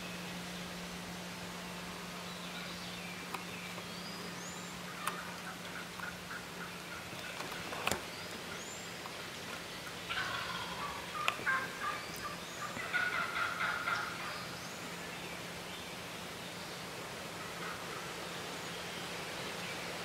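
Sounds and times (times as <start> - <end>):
turkeys gobbling: 4.2 - 14.8, 17.3 - 18.3.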